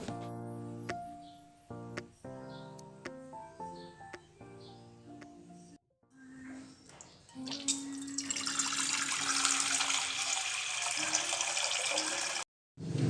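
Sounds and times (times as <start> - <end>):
water running from tap into sink: 6.8 - 12.4.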